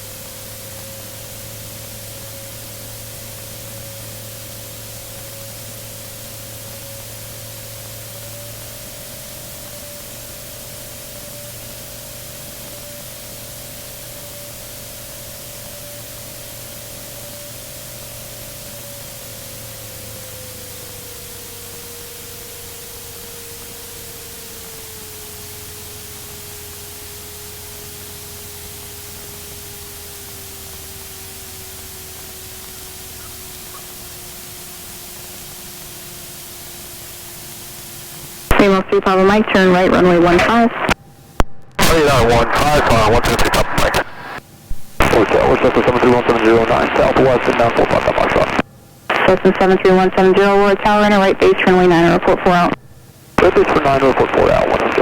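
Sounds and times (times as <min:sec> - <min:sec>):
faint aircraft engine tone: 0:00.0 - 0:55.0
headset intercom hiss: 0:38.2 - 0:55.0.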